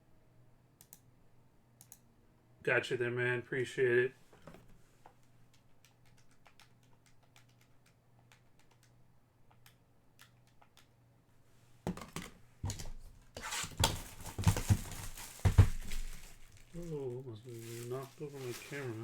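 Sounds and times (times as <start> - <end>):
keyboard typing clicks: 0.8 - 1.0, 1.8 - 2.0, 5.5 - 11.0.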